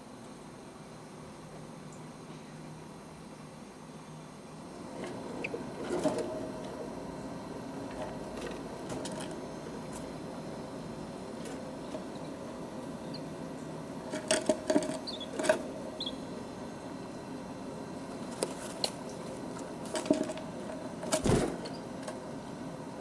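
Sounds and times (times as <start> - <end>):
chicks peeping: 15.0 - 15.4, 16.0 - 16.3.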